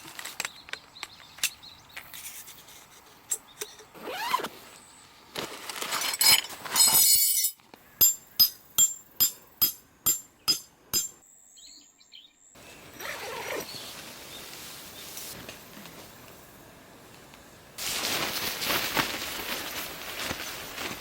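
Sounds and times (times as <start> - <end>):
hammer striking metal tent peg: 8.0 - 11.2
rustling: 12.9 - 16.5, 17.1 - 21.0.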